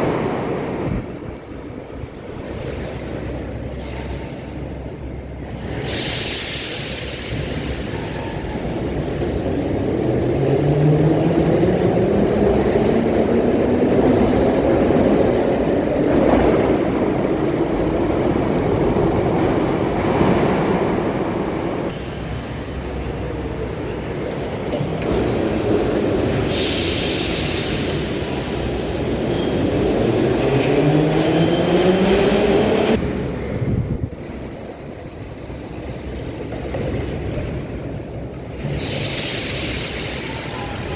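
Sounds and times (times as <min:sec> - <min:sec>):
wheel and track rumble: 0:00.0 - 0:40.9
hiss bursts: 0:05.7 - 0:08.4, 0:26.4 - 0:29.3, 0:38.7 - 0:40.9.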